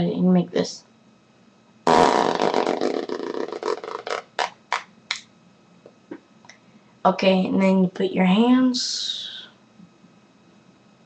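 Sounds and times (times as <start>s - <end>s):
person blowing raspberry: 1.9s - 4.9s.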